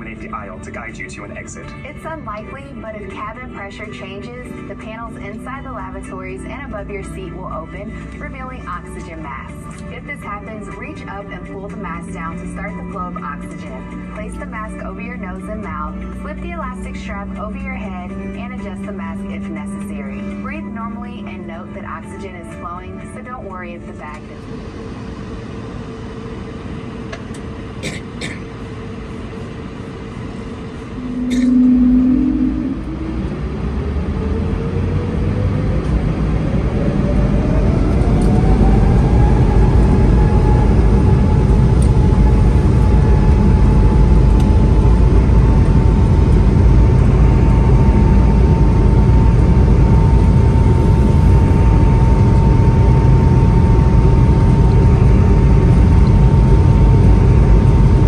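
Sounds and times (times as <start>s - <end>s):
deep engine roar: 0.0s - 58.0s
jet engine whine climbing: 0.0s - 58.0s
brief low hum: 28.8s - 36.1s.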